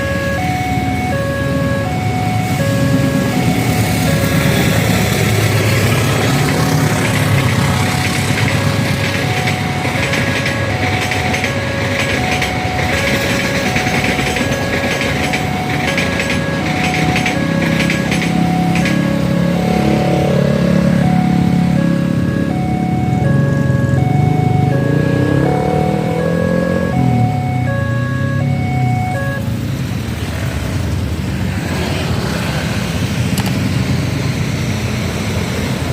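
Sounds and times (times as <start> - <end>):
two-note level crossing alarm: 0.0 - 29.5
vehicle engine noise: 0.0 - 35.9.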